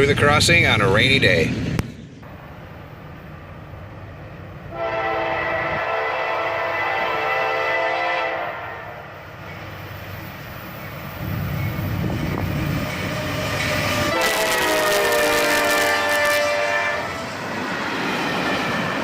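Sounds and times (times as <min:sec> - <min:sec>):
passing train rumble and rail noise: 0:00.0 - 0:19.0
locomotive air horn: 0:04.7 - 0:09.0, 0:13.9 - 0:17.3.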